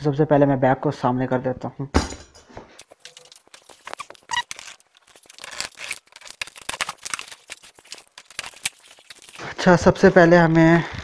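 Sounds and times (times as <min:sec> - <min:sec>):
cardboard box crackling and tearing: 0:02.8 - 0:09.4.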